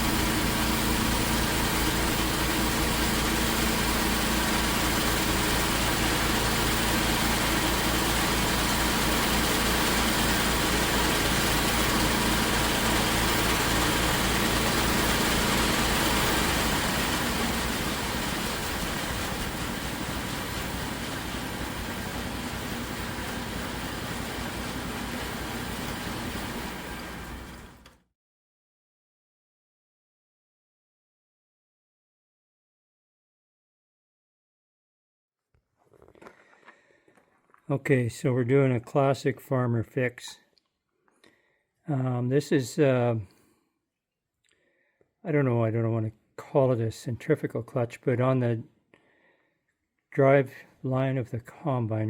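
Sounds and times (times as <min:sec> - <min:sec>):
farm machinery engine humming: 0:00.0 - 0:28.0.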